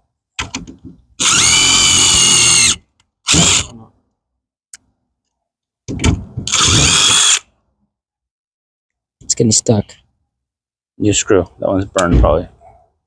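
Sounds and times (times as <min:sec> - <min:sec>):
power drill driving a screw: 0:01.2 - 0:03.7, 0:06.5 - 0:07.5.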